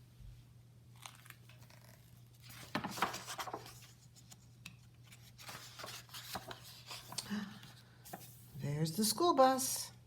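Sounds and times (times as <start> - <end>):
paper pages rustling: 1.0 - 8.5.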